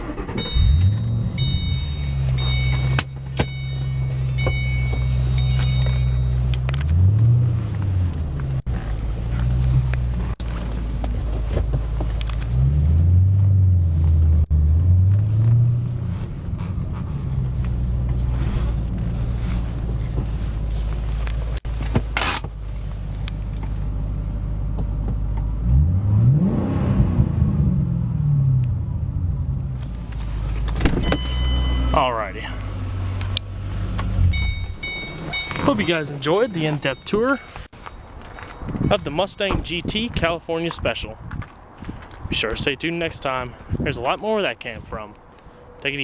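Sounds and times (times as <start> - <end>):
car engine at low revs: 0.0 - 36.1.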